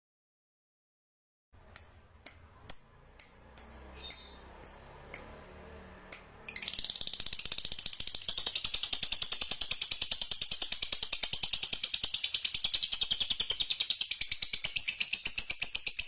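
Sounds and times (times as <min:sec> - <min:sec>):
songbird chips and chatter: 0:03.6 - 0:04.8.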